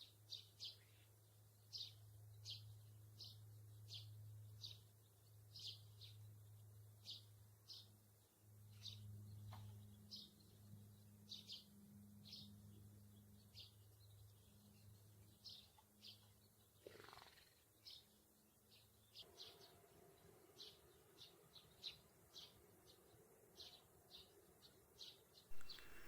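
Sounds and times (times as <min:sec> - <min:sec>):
bird chirps: 0:25.5 - 0:26.0
low steady hum: 0:25.5 - 0:26.0.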